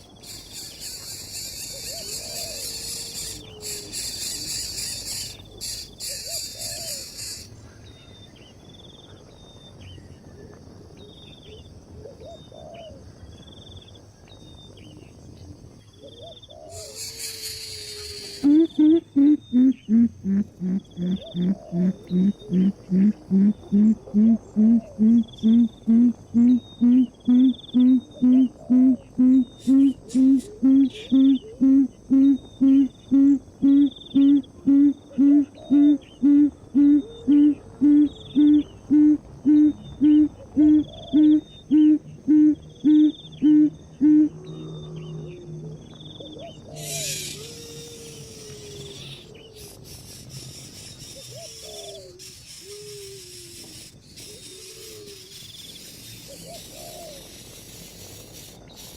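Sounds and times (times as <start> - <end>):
higher repeating calls: 0.0 - 7.5, 16.7 - 35.4, 46.8 - 58.0
low hoots: 0.0 - 7.5, 16.6 - 57.4
high insect chorus: 0.0 - 58.9
short burst of hiss: 16.8 - 18.5, 46.8 - 58.9.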